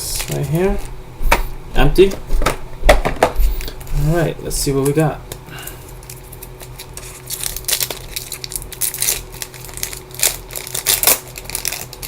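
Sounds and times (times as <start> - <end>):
wrapper tearing and crinkling: 5.9 - 12.0.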